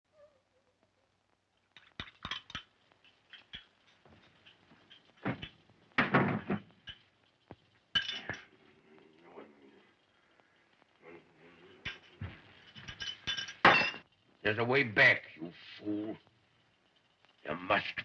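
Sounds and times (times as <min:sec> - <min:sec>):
glassware clinking: 0:01.8 - 0:07.1, 0:07.9 - 0:08.7, 0:11.8 - 0:14.1
glass clatter: 0:01.8 - 0:08.7, 0:11.8 - 0:14.2.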